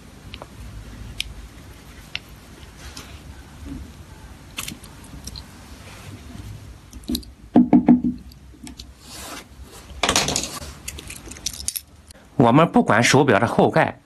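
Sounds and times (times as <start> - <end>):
watch knocking on hard surface: 7.6 - 8.2.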